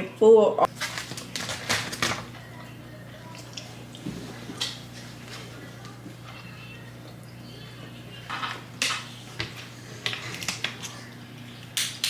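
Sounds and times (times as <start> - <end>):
steady low hum: 0.1 - 12.0
packaging rustling: 0.7 - 2.4.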